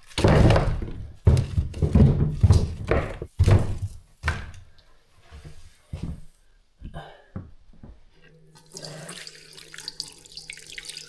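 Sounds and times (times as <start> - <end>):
heavy thuds and knocks of gear: 0.0 - 4.6.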